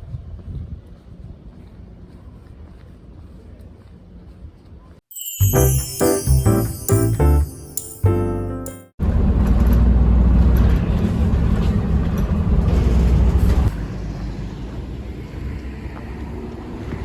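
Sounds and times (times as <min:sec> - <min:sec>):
background music: 0:05.1 - 0:09.0.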